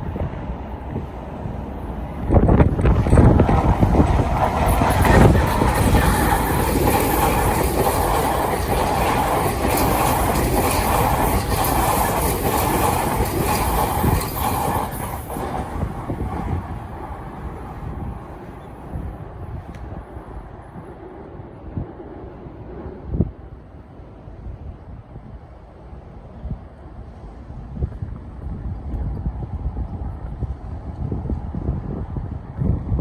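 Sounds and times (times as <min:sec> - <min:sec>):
electric train passing: 0:00.0 - 0:27.4
wheels clacking over rail joints: 0:00.8 - 0:19.2.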